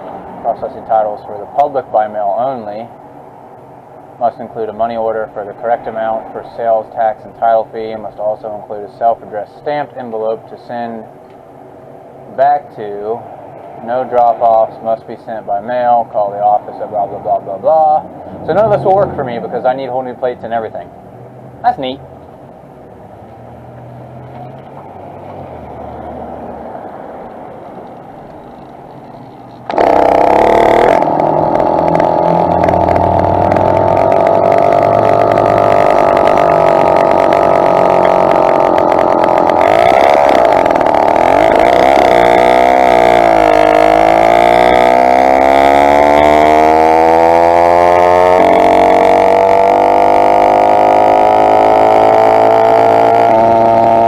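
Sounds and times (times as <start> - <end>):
two-stroke engine running: 27.8 - 54.0.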